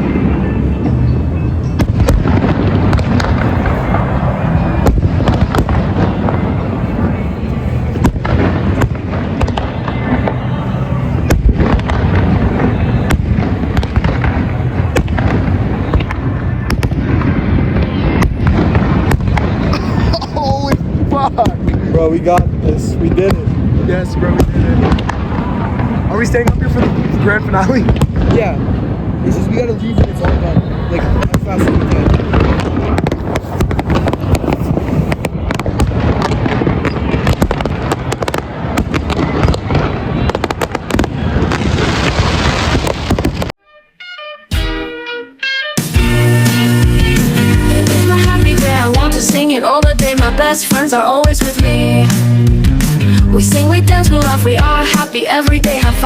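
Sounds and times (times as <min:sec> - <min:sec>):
continuous low rumble: 0:00.0 - 0:41.5, 0:51.6 - 0:54.8
fireworks booming and cracking: 0:00.0 - 0:43.6, 0:45.8 - 0:56.0.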